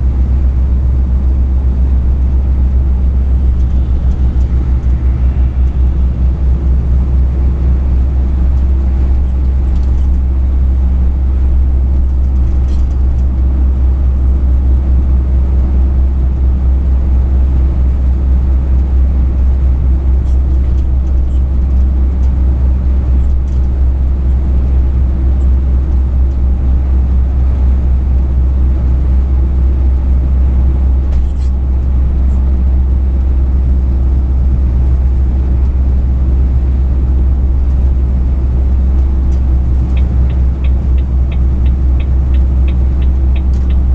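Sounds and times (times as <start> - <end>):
truck engine drone: 0.0 - 43.9
faint ticks: 39.9 - 43.9.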